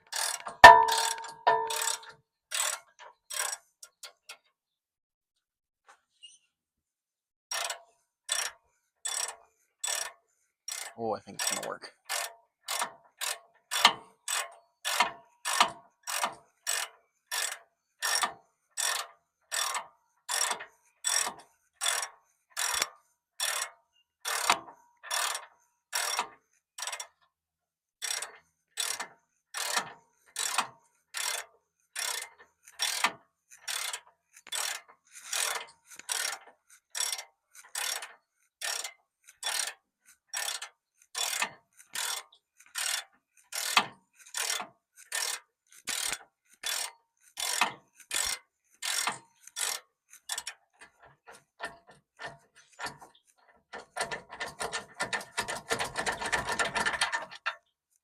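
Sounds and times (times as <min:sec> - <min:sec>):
socket ratchet clicking: 0:00.6 - 0:02.1.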